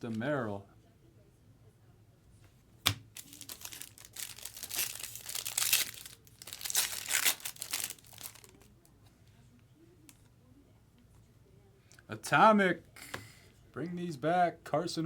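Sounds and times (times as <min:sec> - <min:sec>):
card pack tearing open: 0:03.1 - 0:08.7
wrapper crinkling: 0:03.1 - 0:08.7.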